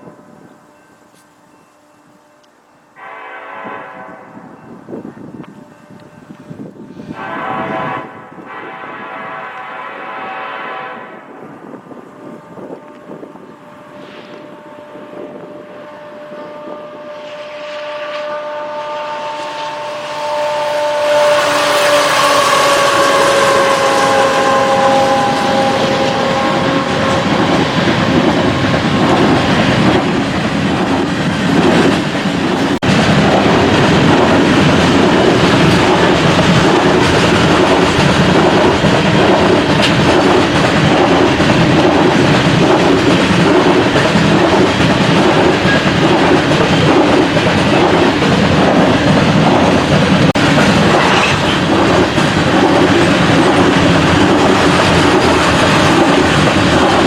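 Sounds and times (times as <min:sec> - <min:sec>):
train wheels clacking over rail joints: 0:21.4 - 0:57.0.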